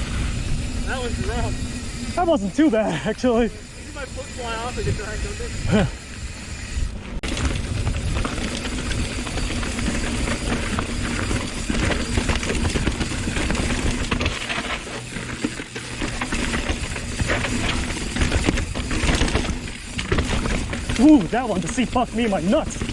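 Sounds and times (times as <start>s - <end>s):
mountain bike clattering over rocks: 7.2s - 22.9s.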